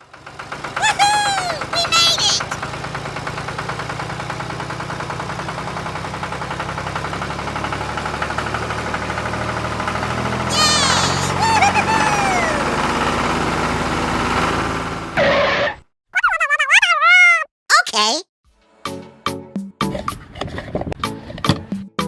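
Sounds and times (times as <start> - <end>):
tractor engine knocking: 0.0 - 15.0
high voice calling out: 0.8 - 2.6, 10.5 - 12.8, 16.2 - 18.2.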